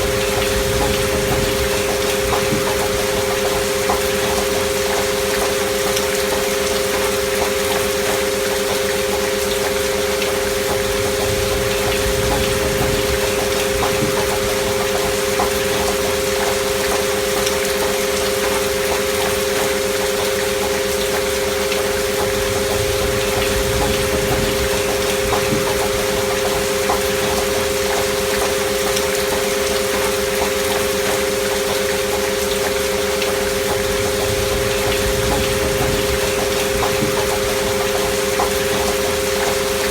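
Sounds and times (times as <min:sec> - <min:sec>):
pure sine tones: 0:00.0 - 0:08.2, 0:09.9 - 0:17.6, 0:20.8 - 0:30.8, 0:32.9 - 0:39.9
rain hiss: 0:00.0 - 0:39.9.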